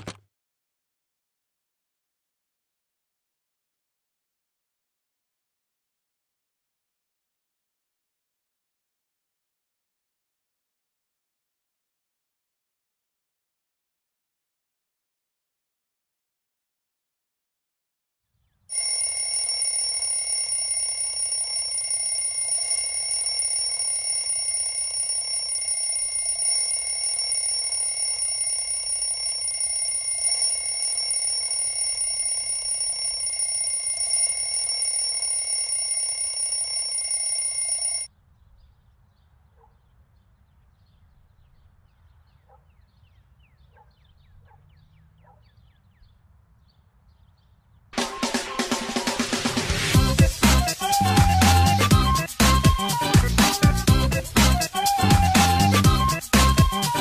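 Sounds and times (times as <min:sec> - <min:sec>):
alarm clock bell ringing: 0:18.7 - 0:38.1.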